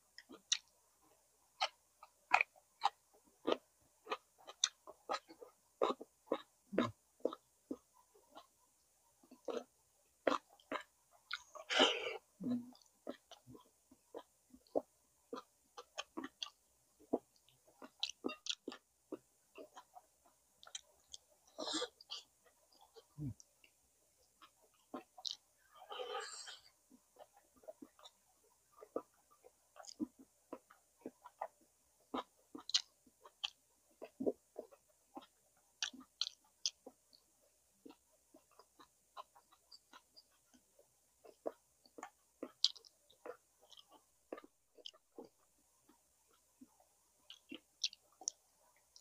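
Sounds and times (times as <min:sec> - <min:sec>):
person chewing food: 0:00.1 - 0:00.7, 0:01.6 - 0:08.6, 0:09.2 - 0:49.0
wet mouth smacks and clicks: 0:42.0 - 0:45.0.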